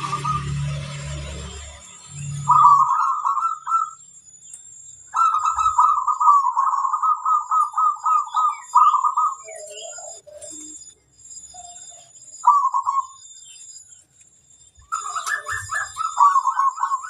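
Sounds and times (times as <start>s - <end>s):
dove cooing in quick notes: 14.9s - 17.0s.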